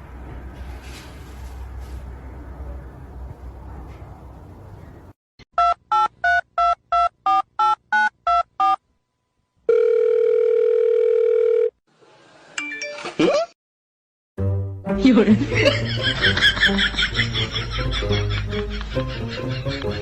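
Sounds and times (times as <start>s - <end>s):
telephone ring tone: 9.7s - 11.8s.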